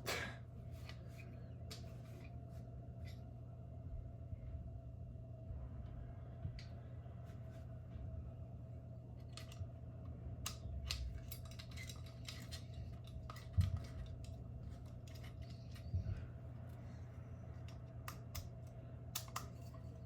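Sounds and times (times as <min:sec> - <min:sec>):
metal parts clicking and scraping: 0:10.4 - 0:16.0, 0:17.6 - 0:20.0.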